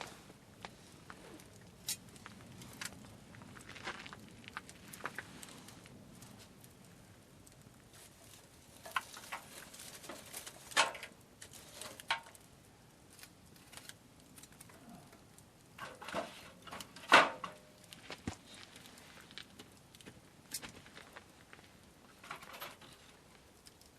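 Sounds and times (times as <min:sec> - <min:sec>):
small objects clicking and clattering: 0:07.5 - 0:12.4, 0:22.1 - 0:23.9.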